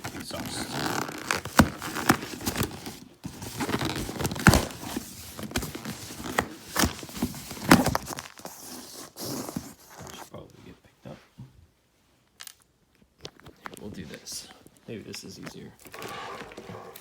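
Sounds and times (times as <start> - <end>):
tape tearing: 0.0 - 10.2
cardboard and packing rustling: 0.0 - 10.5
box knocks and scrapes: 0.4 - 10.2.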